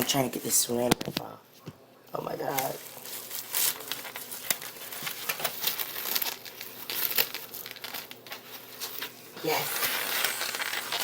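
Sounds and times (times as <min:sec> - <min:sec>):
cling wrap crinkling: 0:02.3 - 0:11.0.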